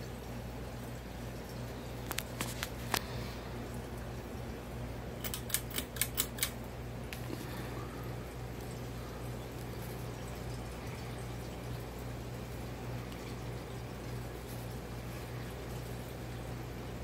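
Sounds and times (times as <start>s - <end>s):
ceiling fan humming: 0.0s - 17.0s
sharp clicks: 5.2s - 6.6s.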